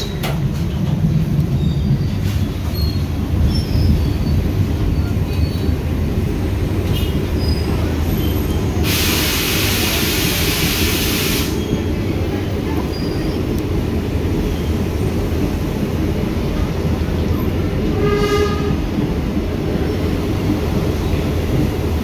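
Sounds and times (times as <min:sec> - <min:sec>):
train wheels rumbling: 0:00.0 - 0:22.0
loud high hiss: 0:08.8 - 0:11.6.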